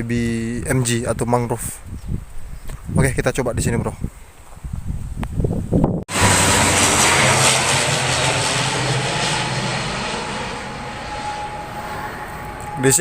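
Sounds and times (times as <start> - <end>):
airplane engine roar: 6.1 - 13.0.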